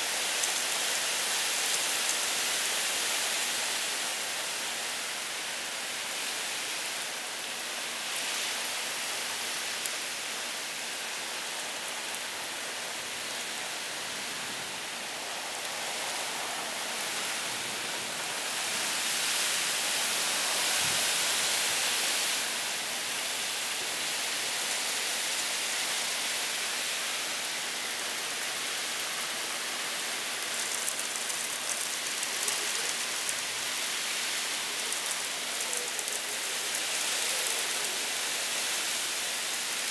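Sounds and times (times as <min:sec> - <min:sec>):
heavy rain hiss: 0:00.0 - 0:39.9
raindrops pattering: 0:30.4 - 0:33.8.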